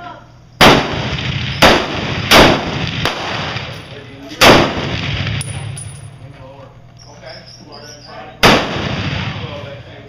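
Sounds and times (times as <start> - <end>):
rifle shots with echo: 0.6 - 6.1, 8.4 - 10.0.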